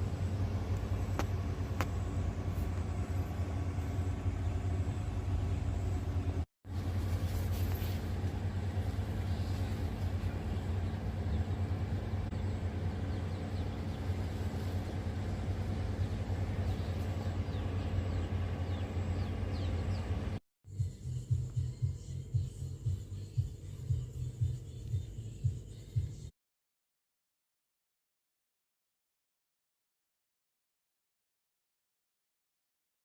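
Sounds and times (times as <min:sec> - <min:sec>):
low rumble with hum: 0:00.0 - 0:26.3.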